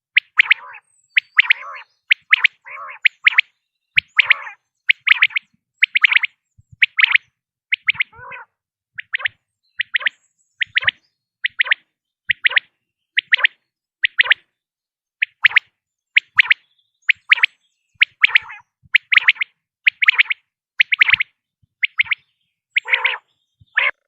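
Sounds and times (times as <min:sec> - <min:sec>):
quail calling: 0:00.0 - 0:14.5, 0:15.2 - 0:24.0.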